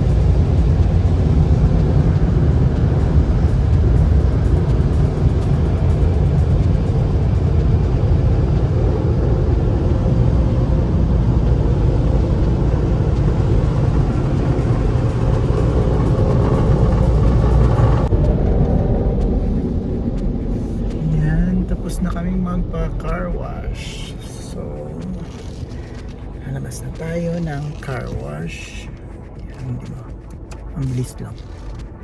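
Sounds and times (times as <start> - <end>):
low rumble: 0.0 - 32.0
car wash rushing noise: 7.2 - 32.0.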